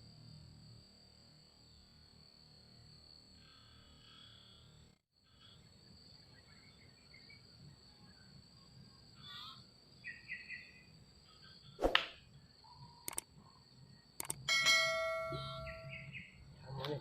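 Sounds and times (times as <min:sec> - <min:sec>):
high insect drone: 0:00.0 - 0:17.0
bird chirps: 0:09.2 - 0:10.9, 0:15.3 - 0:16.4
sharp swish: 0:11.8 - 0:12.2.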